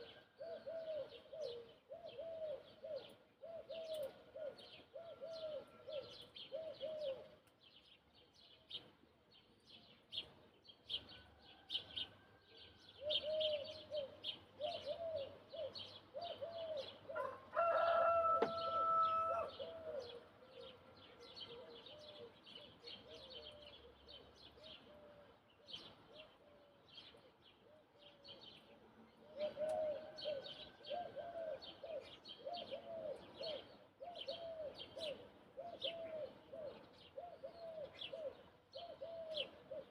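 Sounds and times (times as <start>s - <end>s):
repeated lower bird calls: 0.0s - 39.9s
small birds chirping: 0.0s - 39.9s
rooster crowing: 17.2s - 19.7s.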